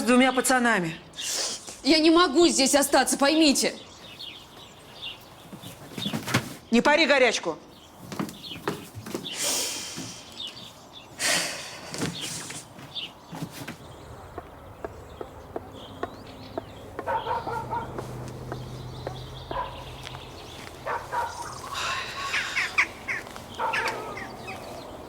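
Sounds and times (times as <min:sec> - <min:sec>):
small birds chirping: 0:00.0 - 0:25.0
chickens clucking: 0:13.3 - 0:25.0.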